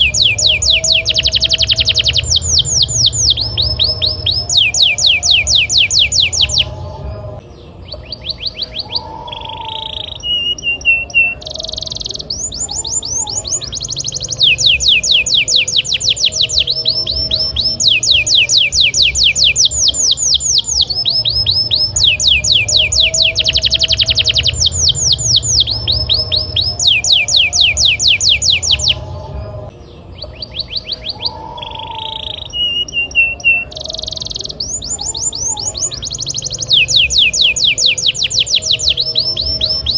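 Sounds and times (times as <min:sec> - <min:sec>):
steady low hum: 0:00.0 - 0:09.0, 0:12.2 - 0:30.4
canary singing trills: 0:00.0 - 0:39.9.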